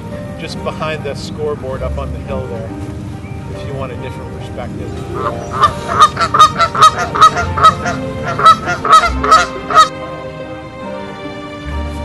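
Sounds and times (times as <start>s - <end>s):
faint background music: 0.0s - 12.0s
geese honking: 5.0s - 10.6s.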